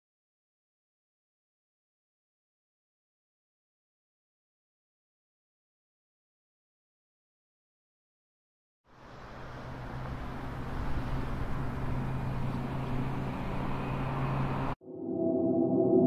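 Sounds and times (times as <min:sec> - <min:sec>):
gong-like ringing tone: 0:14.8 - 0:16.0.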